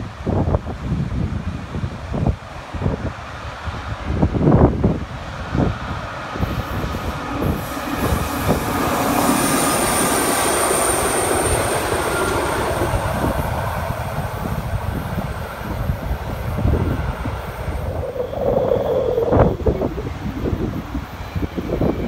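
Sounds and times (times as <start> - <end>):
rail tractor engine running: 0.0 - 22.0
wind buffeting microphone: 0.0 - 22.0
wheels rumbling over track: 2.4 - 22.0
high wheel squeal: 15.7 - 22.0.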